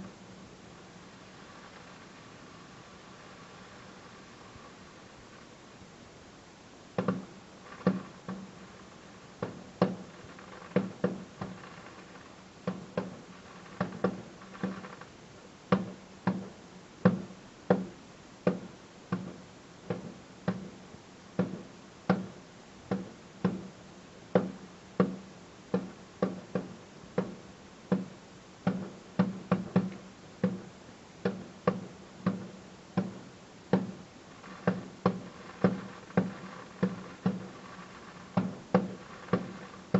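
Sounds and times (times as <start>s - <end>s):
firework shells bursting: 1.1s - 5.6s, 7.0s - 15.2s, 32.4s - 39.9s.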